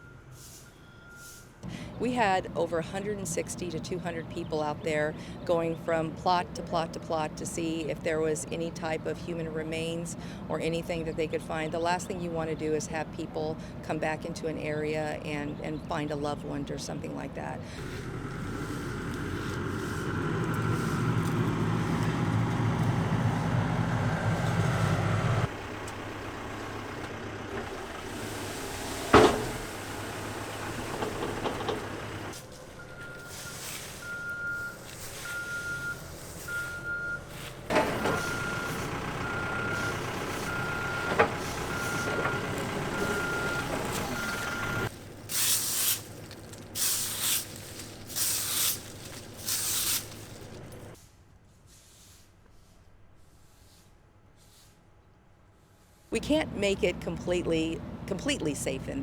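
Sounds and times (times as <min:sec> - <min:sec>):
reversing alarm beeping: 0:00.0 - 0:01.6, 0:17.9 - 0:25.4, 0:32.2 - 0:44.9
heavy vehicle engine running: 0:00.0 - 0:14.2, 0:16.2 - 0:51.0, 0:56.2 - 0:59.0
bursts of hissing: 0:46.8 - 0:50.5.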